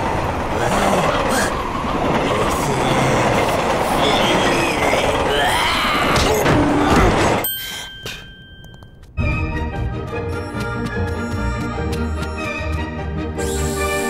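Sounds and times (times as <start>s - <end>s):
train wheels on rails: 0.0s - 5.6s.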